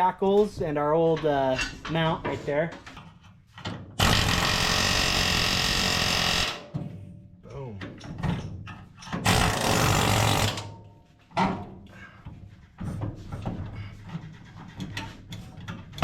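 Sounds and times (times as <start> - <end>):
power tool running: 4.0 - 6.6, 9.3 - 10.7.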